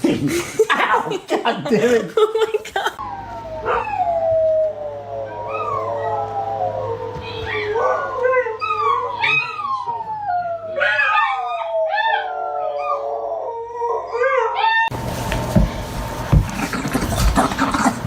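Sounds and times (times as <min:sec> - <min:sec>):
dog howling: 0:03.0 - 0:14.9.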